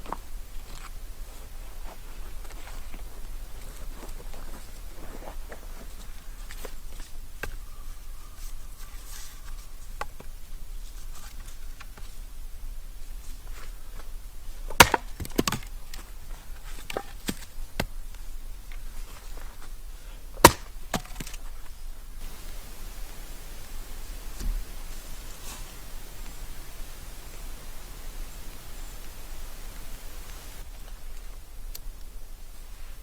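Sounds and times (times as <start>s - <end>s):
axe chopping wood: 14.7s - 15.7s, 20.4s - 21.4s.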